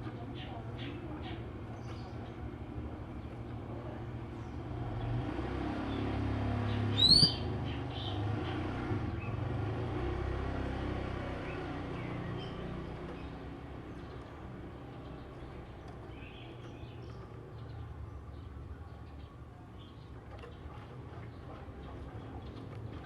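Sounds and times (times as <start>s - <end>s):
bird chirping: 6.7s - 8.2s.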